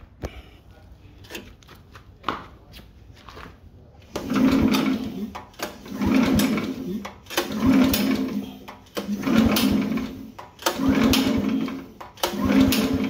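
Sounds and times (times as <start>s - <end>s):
engine pull-start cranking: 4.1s - 13.0s.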